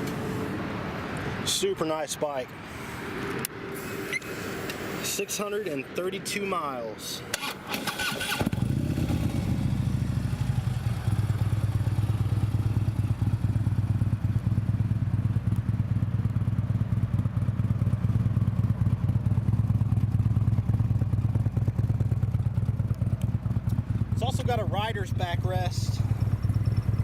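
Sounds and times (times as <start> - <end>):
motorcycle engine idling: 8.4 - 27.0.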